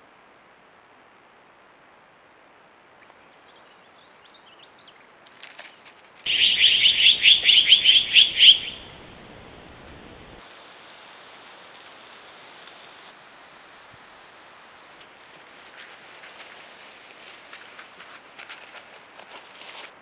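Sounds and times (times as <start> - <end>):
bird's rapid chattering call: 6.3 - 8.8
faint high chirps: 6.3 - 9.1.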